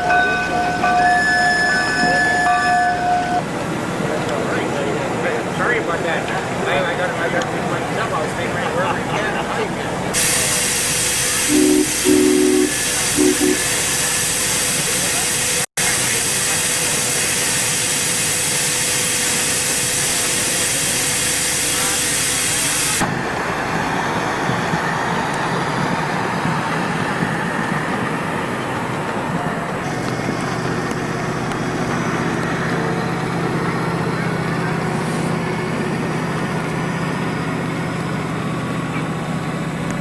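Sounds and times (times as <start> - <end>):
steam engine running: 9.9 - 40.0
short low steam whistle toots: 10.2 - 23.0
loud hiss of steam: 10.2 - 23.8.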